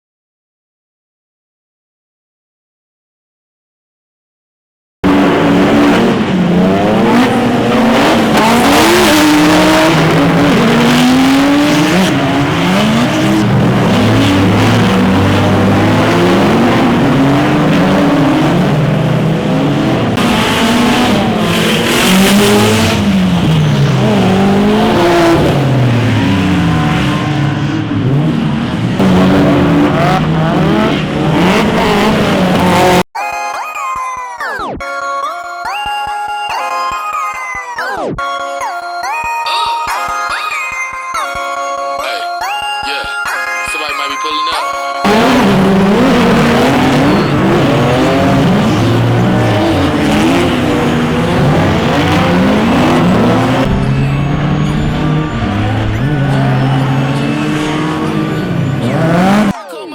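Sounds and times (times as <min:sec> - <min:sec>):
tire noise: 0:05.0 - 0:33.0, 0:45.0 - 0:59.6
car engines revving hard: 0:05.0 - 0:33.1, 0:45.0 - 0:59.6.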